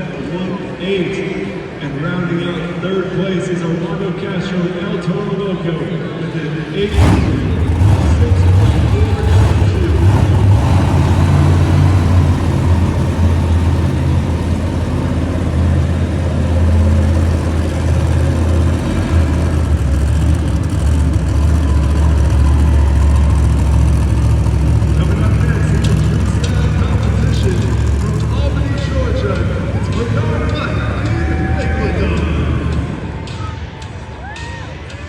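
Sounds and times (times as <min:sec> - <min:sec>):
truck engine running loud: 0:06.3 - 0:34.0.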